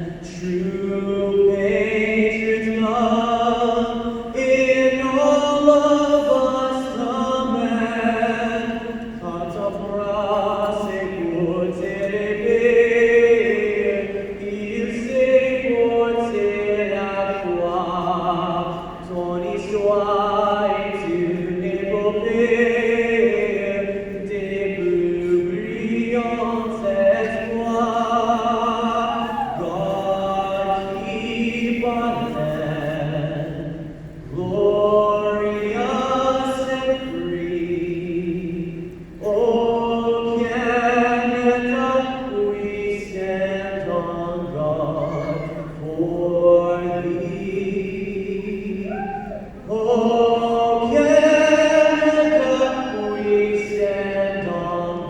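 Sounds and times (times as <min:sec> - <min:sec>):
person singing anthem solo: 0:44.4 - 0:46.0.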